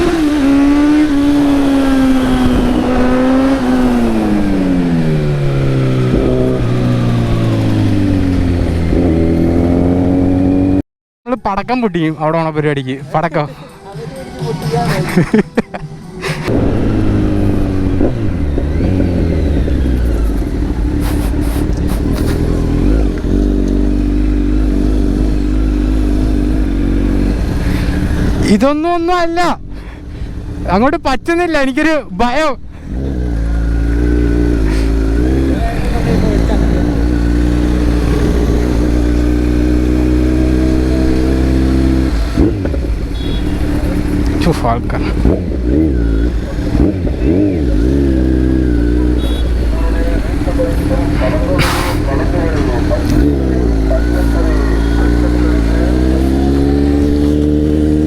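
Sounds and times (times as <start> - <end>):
motorcycle engine running: 0.0 - 10.8, 16.5 - 28.4, 32.8 - 58.0
exhaust cracks: 16.5 - 28.6, 32.8 - 58.0.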